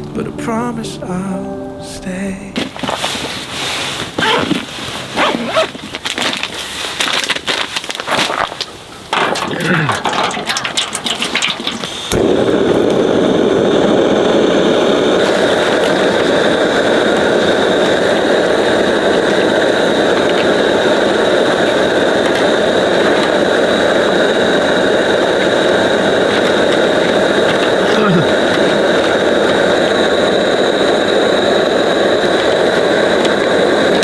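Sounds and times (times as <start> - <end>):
faint high whine: 0.0 - 3.5, 11.7 - 34.0.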